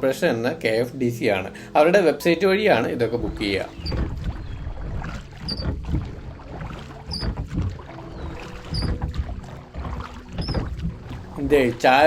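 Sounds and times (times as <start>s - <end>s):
oars pulling through water: 2.3s - 12.0s
oar squeaking: 2.7s - 12.0s.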